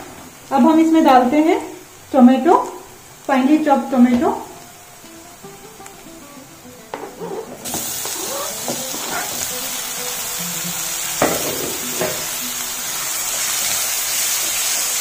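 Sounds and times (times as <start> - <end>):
tomatoes sizzling in hot oil: 0.0 - 15.0
soft background music: 3.4 - 13.6.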